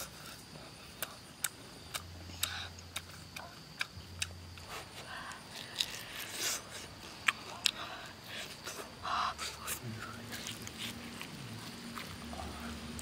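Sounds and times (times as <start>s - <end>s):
person chewing: 0.0s - 13.0s
wet lip smacking clicks: 1.0s - 4.4s.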